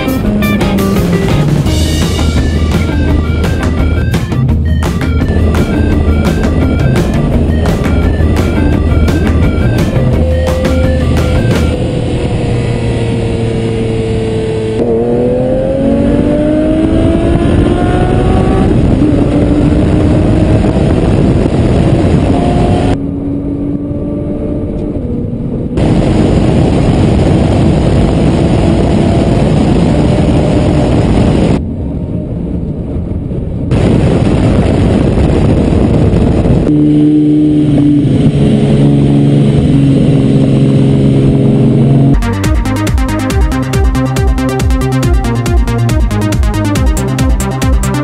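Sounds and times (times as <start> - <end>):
car engine accelerating hard: 0.0 - 31.6, 33.7 - 48.0
wind and road noise: 0.0 - 48.0.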